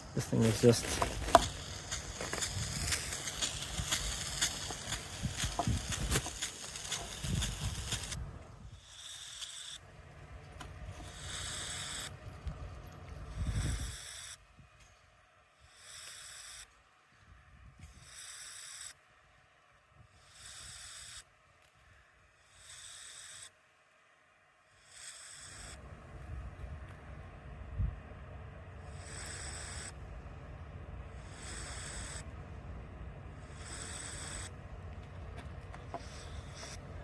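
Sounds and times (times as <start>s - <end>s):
low rumble: 25.8s - 29.0s.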